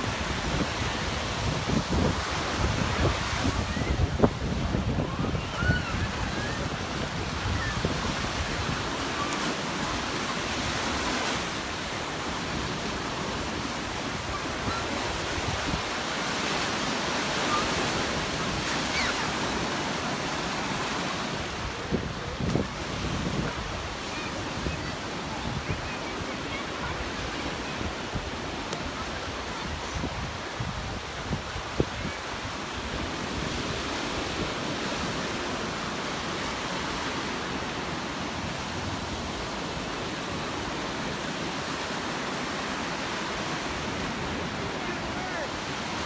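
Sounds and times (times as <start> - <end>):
wind buffeting microphone: 0.0 - 11.4, 21.4 - 33.7
beach surf washing in: 0.0 - 46.0.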